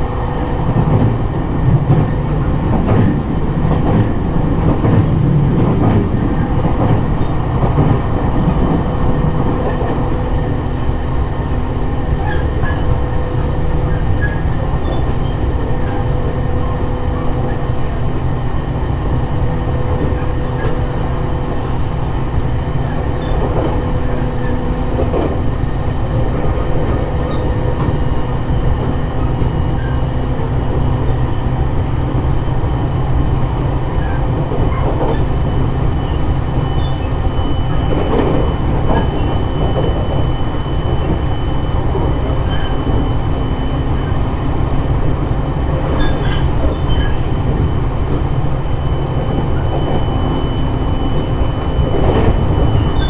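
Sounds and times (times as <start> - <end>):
wheels rumbling on rail: 0.0 - 53.0.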